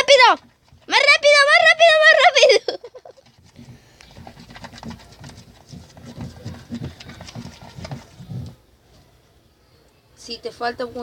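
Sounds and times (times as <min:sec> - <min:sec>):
slime being stirred: 0:03.1 - 0:08.6.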